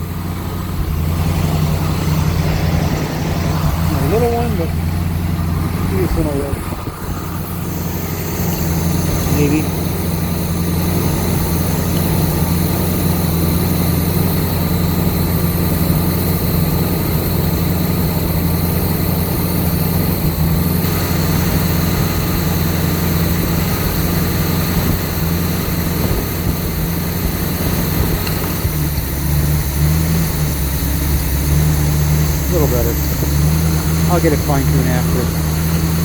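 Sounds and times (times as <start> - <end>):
truck engine idling: 0.0 - 36.0.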